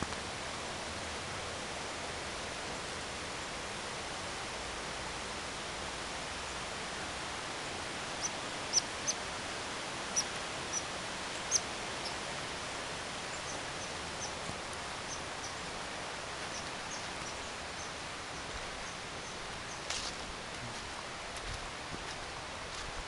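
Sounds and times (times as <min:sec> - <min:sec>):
steady hiss: 0:00.0 - 0:23.0
small bird chip calls: 0:08.2 - 0:09.2, 0:10.1 - 0:12.2, 0:13.3 - 0:15.6.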